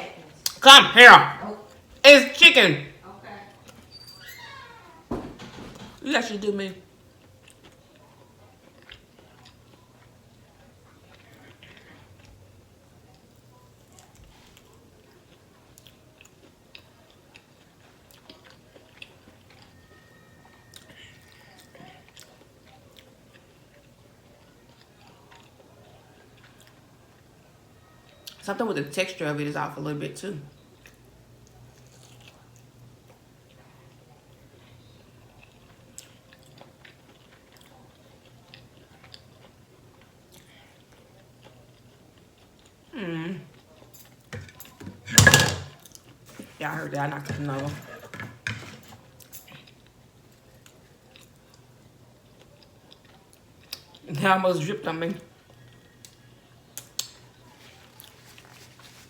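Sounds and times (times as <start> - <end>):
chewing food: 7.0 - 28.4, 30.6 - 44.8, 47.3 - 54.1, 55.3 - 59.0.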